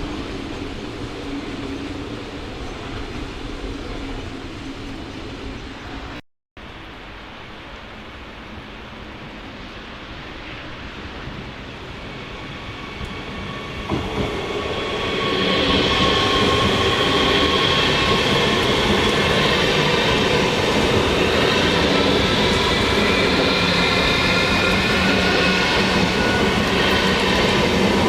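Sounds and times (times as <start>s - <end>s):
train rumbling: 7.9s - 28.0s.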